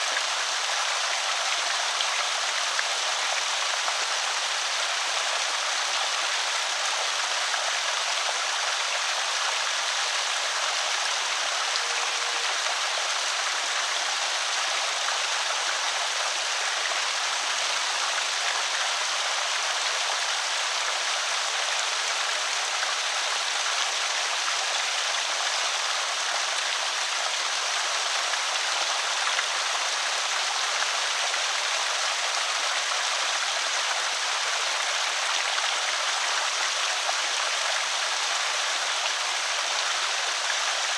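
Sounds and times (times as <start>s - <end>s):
water pouring over spillway: 0.0s - 40.9s.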